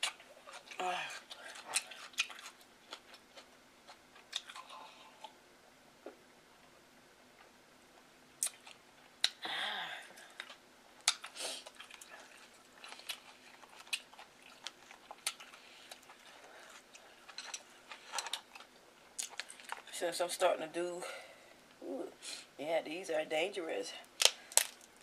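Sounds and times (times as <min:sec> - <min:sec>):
wet chewing and lip smacks: 0:00.0 - 0:05.4, 0:08.4 - 0:09.4, 0:10.2 - 0:19.9.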